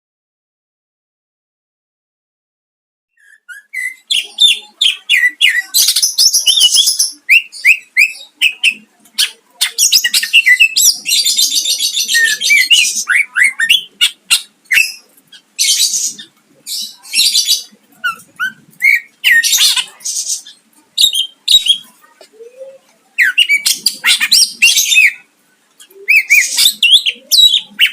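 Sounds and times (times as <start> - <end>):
bird singing whistled chirps: 3.2 - 4.6.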